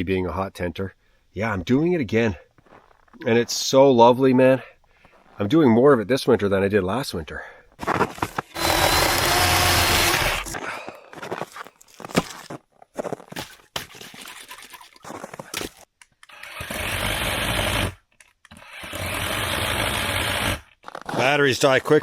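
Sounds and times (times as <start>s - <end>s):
chainsaw cutting: 7.8s - 10.6s, 16.2s - 20.7s.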